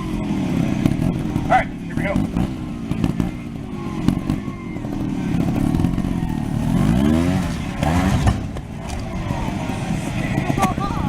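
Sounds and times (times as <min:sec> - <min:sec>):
two-stroke motorcycle engine revving: 0:00.0 - 0:11.0.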